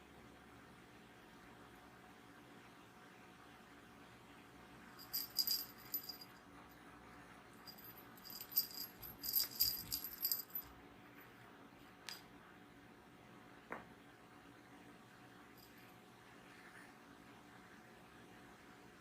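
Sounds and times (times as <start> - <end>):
toy jingling and rattling: 5.0 - 6.4, 7.6 - 10.7.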